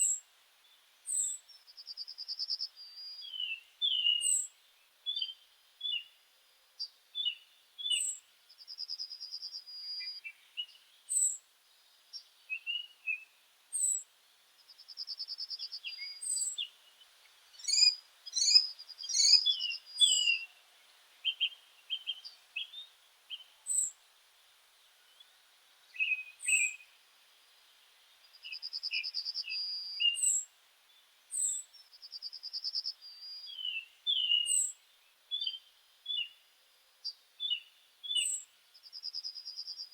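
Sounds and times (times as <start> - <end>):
bird chirps: 1.1 - 4.5, 6.8 - 11.4, 12.1 - 20.6, 21.2 - 24.0, 25.9 - 27.0, 28.2 - 30.5, 31.3 - 36.4, 37.0 - 39.9.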